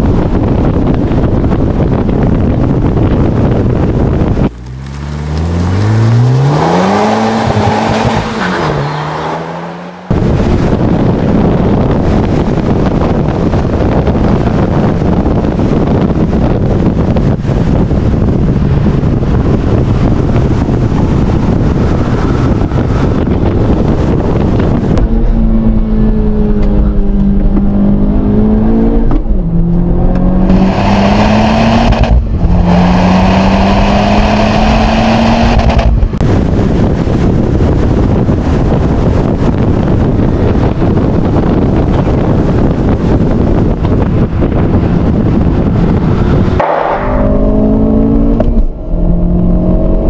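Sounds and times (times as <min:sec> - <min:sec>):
car engine accelerating: 0:00.0 - 0:50.0
wind and road roar: 0:00.0 - 0:50.0.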